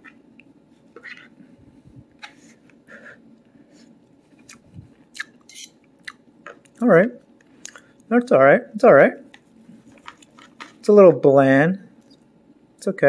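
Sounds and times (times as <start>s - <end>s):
person chewing: 4.3s - 6.8s, 7.4s - 8.1s.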